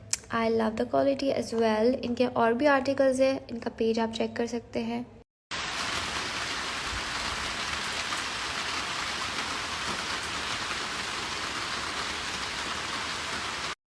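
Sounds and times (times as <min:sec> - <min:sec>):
rain hissing: 0:05.5 - 0:13.8.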